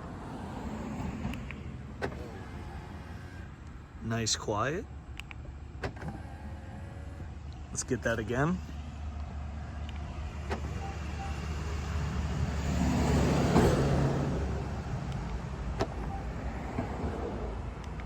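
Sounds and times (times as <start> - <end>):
sharp clicks: 5.1 - 6.1
car passing by: 10.4 - 15.2.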